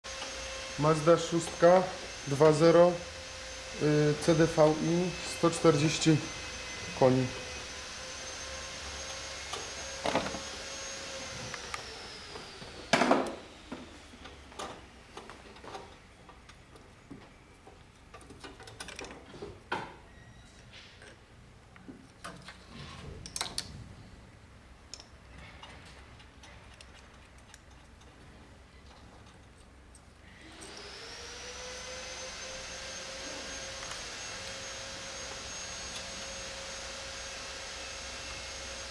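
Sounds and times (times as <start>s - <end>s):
small motor whining: 0.1s - 15.8s, 30.3s - 38.9s.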